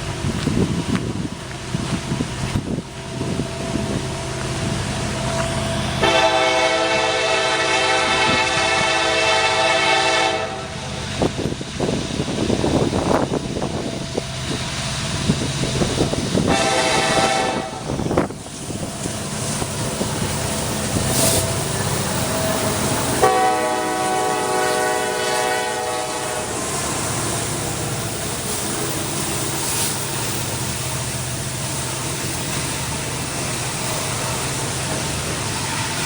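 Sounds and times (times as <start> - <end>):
freight train rumbling: 0.0 - 36.0
locomotive air horn: 6.0 - 10.9, 16.4 - 18.1, 22.5 - 26.9.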